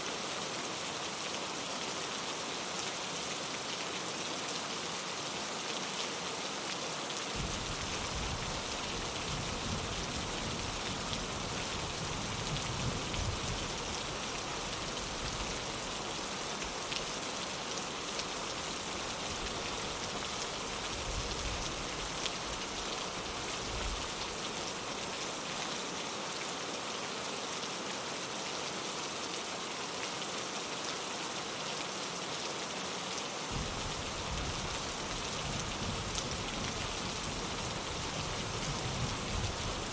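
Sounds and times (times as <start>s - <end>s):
rain pattering on a window: 5.6s - 26.0s, 33.4s - 39.9s.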